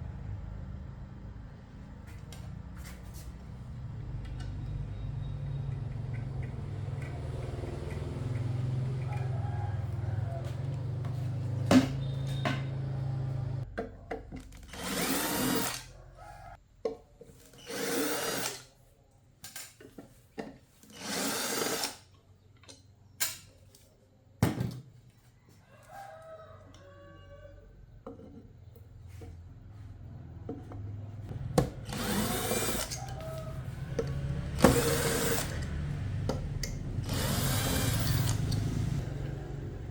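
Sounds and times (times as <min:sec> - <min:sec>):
small motor tool humming: 0:31.8 - 0:36.0, 0:36.9 - 0:39.1.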